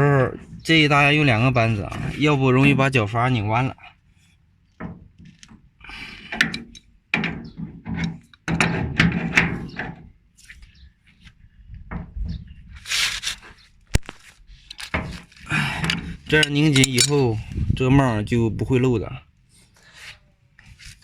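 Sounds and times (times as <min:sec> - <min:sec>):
wrenches knocking and scraping metal: 0:04.7 - 0:10.5, 0:14.6 - 0:17.4.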